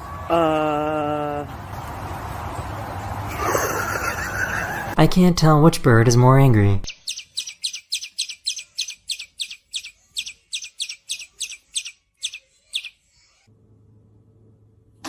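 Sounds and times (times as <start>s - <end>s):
bird chirping rapidly: 6.8s - 13.4s.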